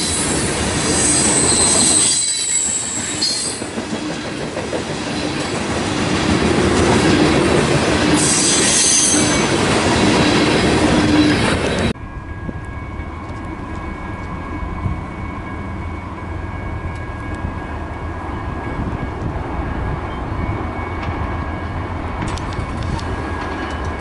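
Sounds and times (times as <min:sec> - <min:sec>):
high-pitched wheel squeals: 0:00.0 - 0:03.7, 0:08.2 - 0:09.5
train wheels rumbling on rail: 0:00.0 - 0:24.0.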